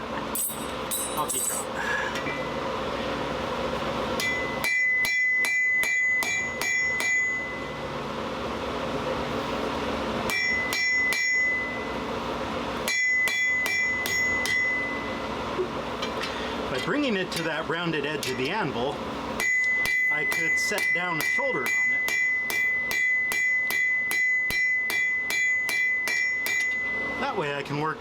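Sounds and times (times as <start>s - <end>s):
hammer striking steel on anvil: 0.3s - 1.7s, 4.2s - 7.8s, 10.3s - 12.0s, 12.8s - 15.2s, 18.2s - 18.6s, 19.4s - 27.2s.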